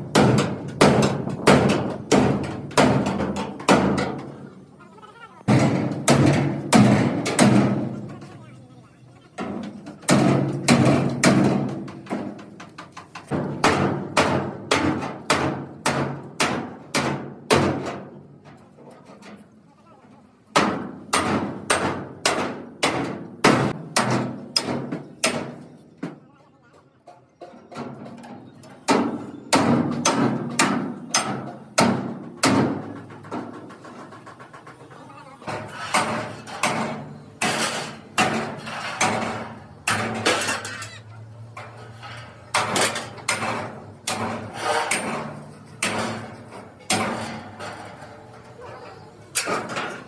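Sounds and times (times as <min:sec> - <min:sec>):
hammer striking steel: 0:28.9 - 0:33.6, 0:35.5 - 0:41.0, 0:41.6 - 0:48.6.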